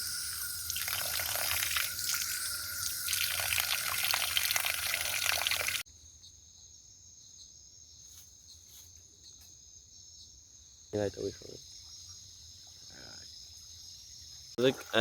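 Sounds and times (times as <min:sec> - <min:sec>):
cricket trills: 0:00.0 - 0:15.0.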